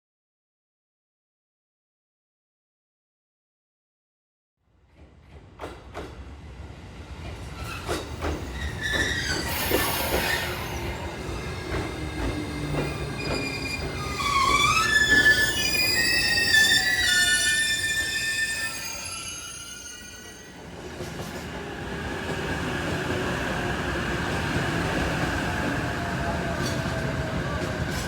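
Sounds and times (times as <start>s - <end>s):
train approaching: 4.9s - 28.0s
high-pitched wheel squeal: 7.7s - 11.0s, 13.1s - 20.6s.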